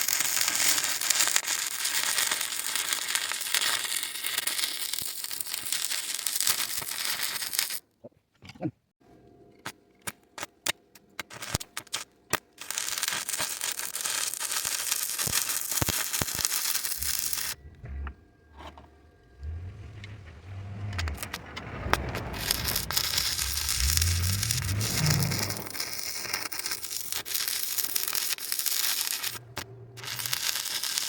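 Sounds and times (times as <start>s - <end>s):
welding arc crackling: 0.0s - 7.8s, 11.2s - 18.2s, 19.2s - 31.0s
low rumble: 17.0s - 26.0s.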